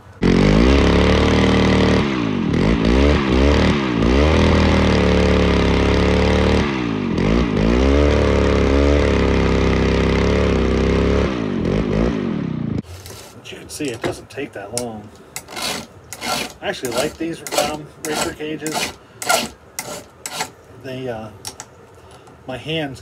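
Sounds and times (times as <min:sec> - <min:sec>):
chainsaw sharpener motor grinding: 0:00.2 - 0:12.1, 0:15.4 - 0:20.6.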